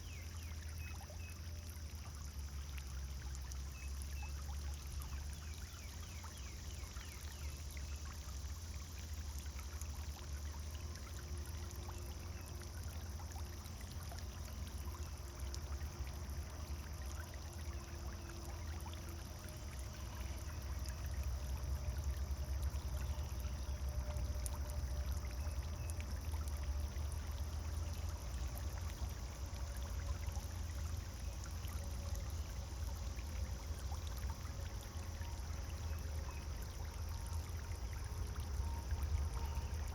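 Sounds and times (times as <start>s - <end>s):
fountain splashing and trickling: 0.0s - 39.9s.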